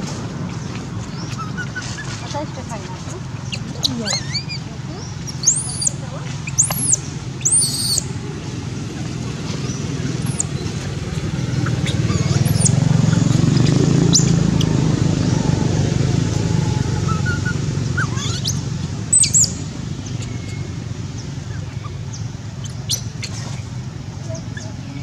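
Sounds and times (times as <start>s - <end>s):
birds chirping: 0.0s - 25.0s
low outdoor rumble: 0.0s - 25.0s.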